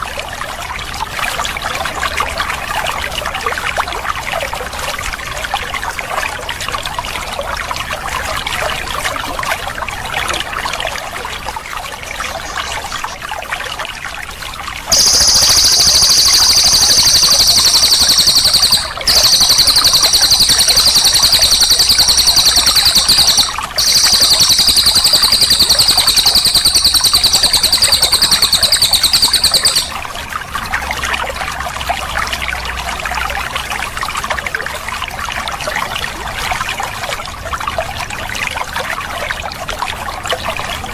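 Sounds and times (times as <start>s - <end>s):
water trickling: 0.0s - 40.4s
bird high-pitched rolling trill: 12.3s - 13.2s, 14.9s - 30.0s.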